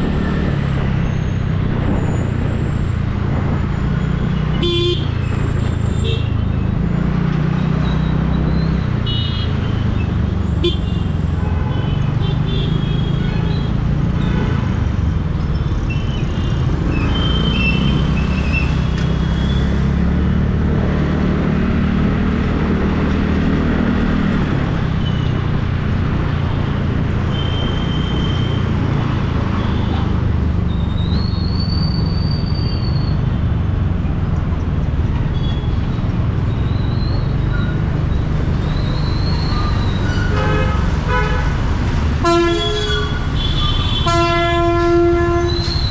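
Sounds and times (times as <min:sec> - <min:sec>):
vehicle horns beeping: 0:04.4 - 0:05.2, 0:09.0 - 0:09.8, 0:10.6 - 0:14.9, 0:38.8 - 0:41.6, 0:42.2 - 0:45.9.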